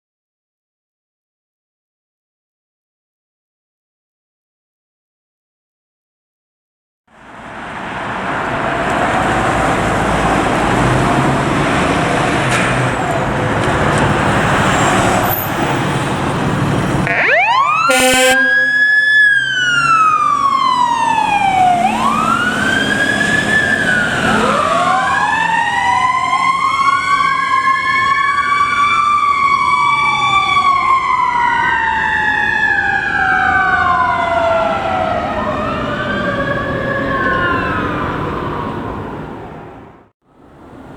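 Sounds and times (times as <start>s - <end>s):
rumbling vehicle noise: 7.1s - 40.9s
wailing siren: 13.0s - 39.9s
second wailing siren: 16.9s - 39.8s
horn note: 17.0s - 19.4s.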